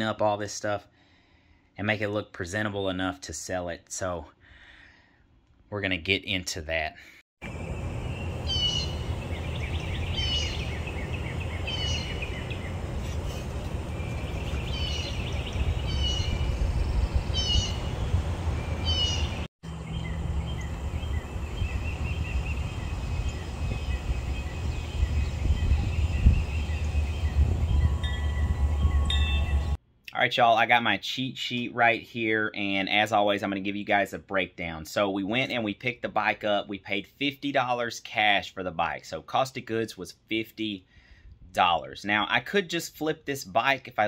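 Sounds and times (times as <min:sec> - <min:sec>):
low outdoor rumble: 0:07.4 - 0:29.8
bird repeating falling call: 0:07.5 - 0:12.8.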